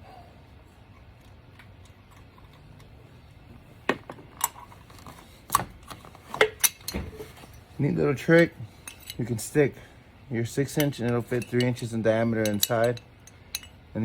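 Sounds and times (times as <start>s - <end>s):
hand tools clacking: 10.7s - 13.8s.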